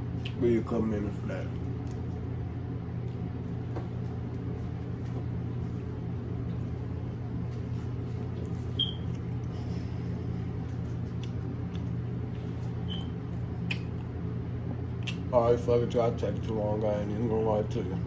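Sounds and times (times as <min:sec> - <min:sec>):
low machine hum: 0:00.0 - 0:18.0
high squeak: 0:12.9 - 0:13.1.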